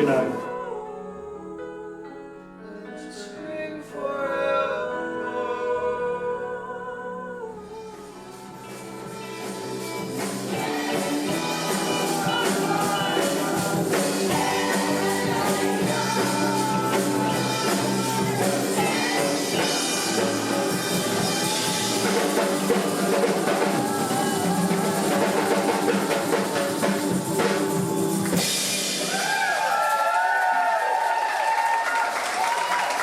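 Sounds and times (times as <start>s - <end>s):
person singing: 0.0s - 29.4s
band playing music: 8.0s - 29.6s
drum kit: 8.0s - 30.6s
applause: 29.0s - 33.0s.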